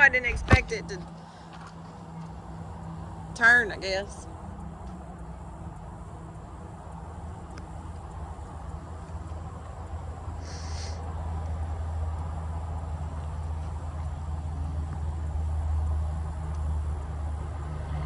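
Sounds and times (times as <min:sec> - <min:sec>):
engine humming: 0:00.0 - 0:18.0
brief hiss: 0:10.4 - 0:11.0.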